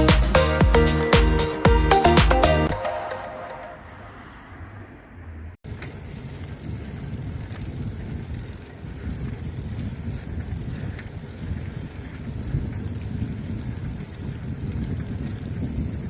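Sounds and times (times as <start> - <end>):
background music: 0.0 - 4.1
moving bicycle noise: 3.8 - 16.0
wind rumbling on microphone: 4.1 - 16.0.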